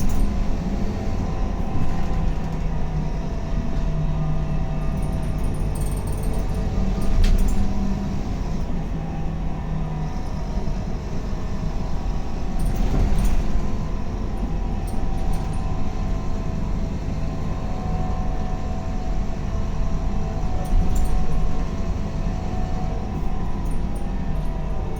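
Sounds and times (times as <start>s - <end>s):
bus engine droning: 0.0s - 24.9s.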